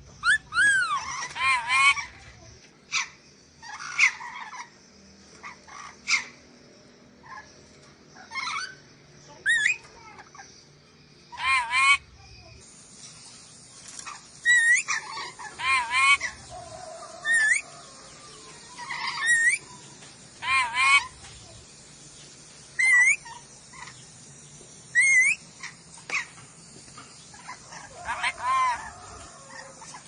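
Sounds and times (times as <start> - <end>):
parrot shrill calls: 0.2 - 2.2, 9.4 - 9.8, 11.3 - 12.1, 14.1 - 19.7, 20.4 - 21.2, 22.8 - 23.9, 24.9 - 26.3, 27.3 - 30.0.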